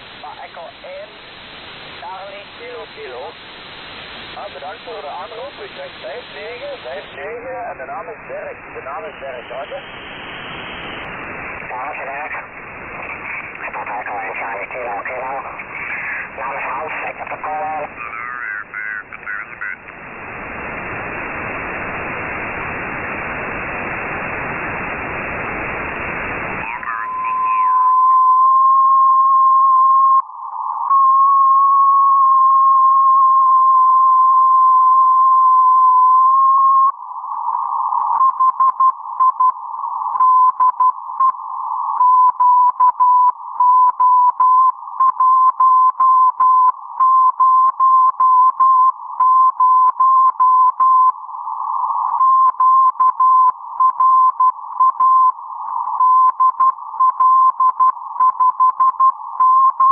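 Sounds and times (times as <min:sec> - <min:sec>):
receiver hiss: 0:00.0 - 0:28.3, 0:30.0 - 0:31.3, 0:36.0 - 0:59.9.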